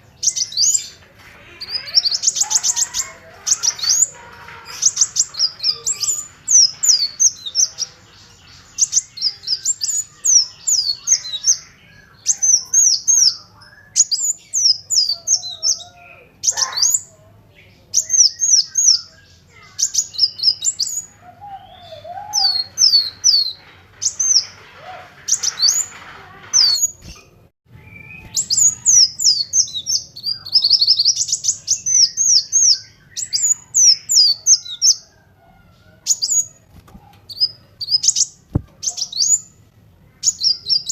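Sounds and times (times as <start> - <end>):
bird singing high thin chirps: 1.6 - 17.1.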